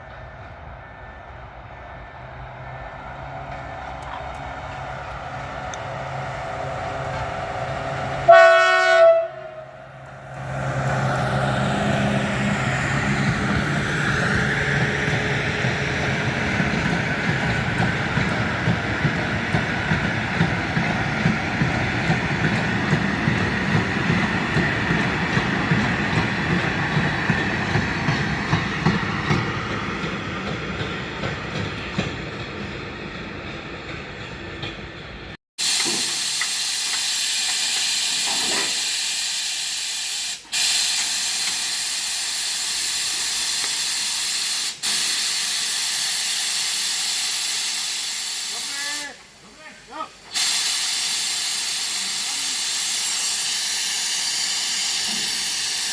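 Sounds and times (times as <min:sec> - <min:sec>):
diesel locomotive engine hum: 0:00.0 - 0:55.9
train wheels clacking on rail joints: 0:02.5 - 0:08.6, 0:10.0 - 0:39.8, 0:40.4 - 0:48.0, 0:50.3 - 0:55.9
steady hiss: 0:35.6 - 0:55.9.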